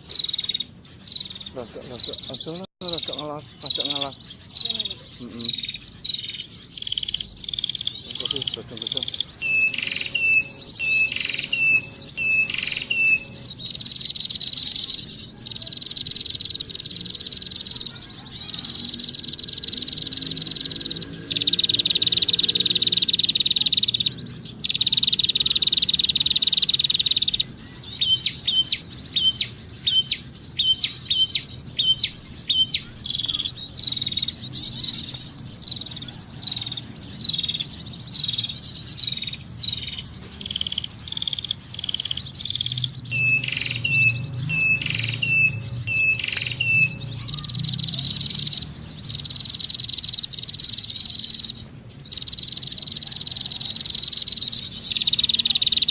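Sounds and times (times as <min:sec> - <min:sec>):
bird chirping: 0:00.0 - 0:55.9
high-pitched buzz: 0:08.1 - 0:15.3.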